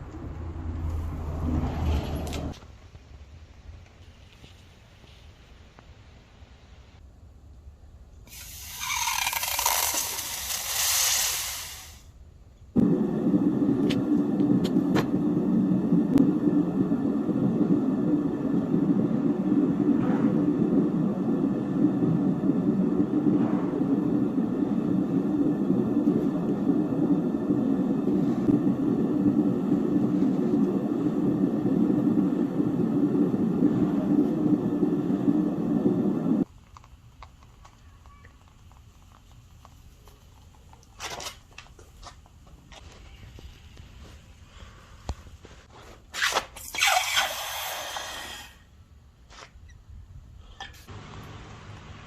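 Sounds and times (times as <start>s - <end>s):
torch flame rumbling: 8.4s - 12.1s, 12.7s - 37.7s.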